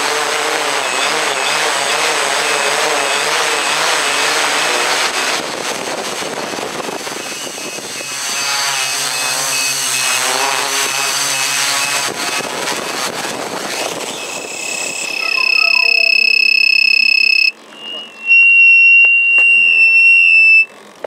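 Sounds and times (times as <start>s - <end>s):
mechanical drone: 0.0s - 21.0s
faint repeating high tone: 14.2s - 20.6s.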